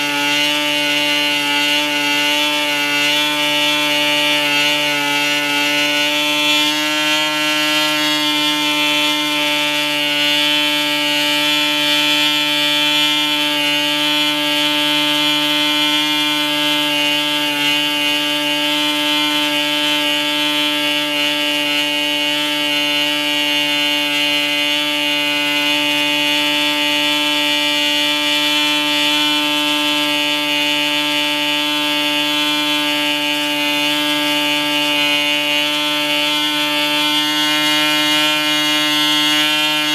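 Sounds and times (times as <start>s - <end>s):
model diesel engine buzzing: 0.0s - 39.9s.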